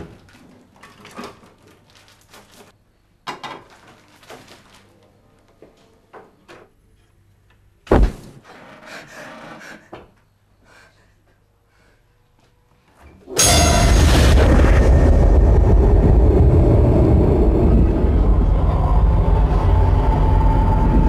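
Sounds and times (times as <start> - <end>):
loud bang: 13.4 - 21.0
loud steady noise: 13.4 - 21.0.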